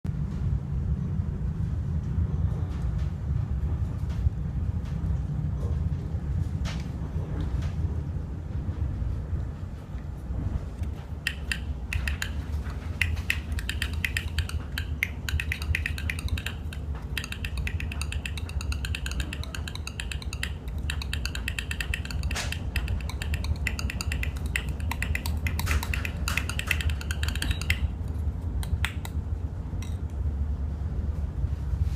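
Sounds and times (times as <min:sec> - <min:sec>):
fingers tapping percussive rhythms: 0:11.2 - 0:29.2.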